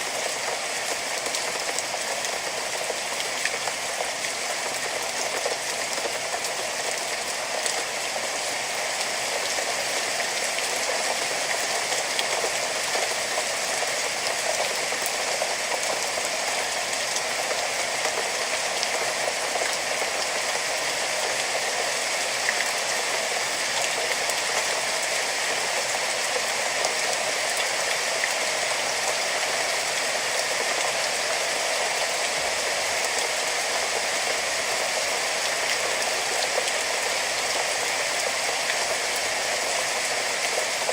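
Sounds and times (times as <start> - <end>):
steady rain hiss: 0.0 - 40.9
raindrops ticking on surface: 0.1 - 40.9.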